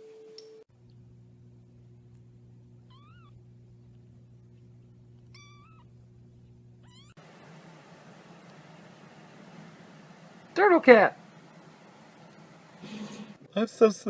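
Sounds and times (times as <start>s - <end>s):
steady low hum: 0.7s - 13.8s
cat meowing: 2.9s - 3.4s, 5.3s - 5.9s, 6.8s - 7.2s.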